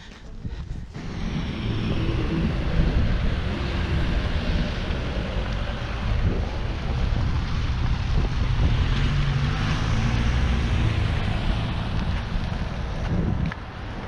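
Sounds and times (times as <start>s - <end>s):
traffic rushing noise: 0.0s - 14.0s
vehicle engine hum: 0.0s - 14.0s.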